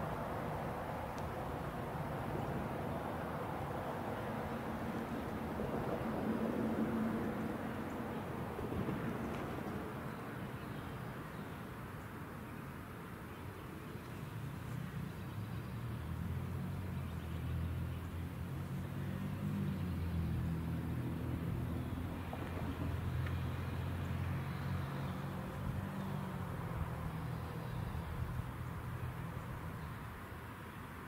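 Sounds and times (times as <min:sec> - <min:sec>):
electric locomotive passing: 0:00.0 - 0:10.6.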